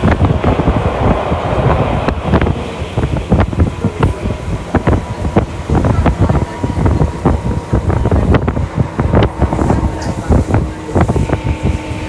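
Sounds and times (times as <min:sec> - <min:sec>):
faint steady whine: 0:00.0 - 0:12.0
train knocks and clatter: 0:00.0 - 0:12.0
train wheels rumbling on track: 0:00.0 - 0:12.0.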